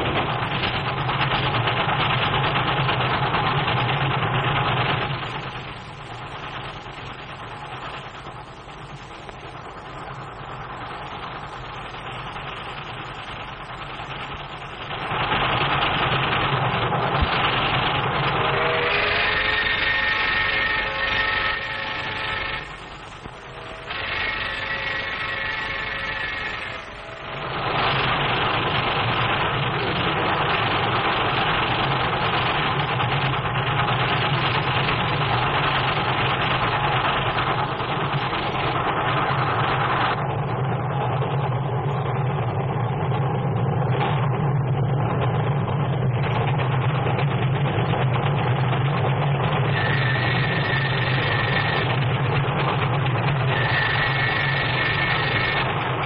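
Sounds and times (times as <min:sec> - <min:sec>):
steam train rumbling and clattering: 0:00.0 - 0:56.0.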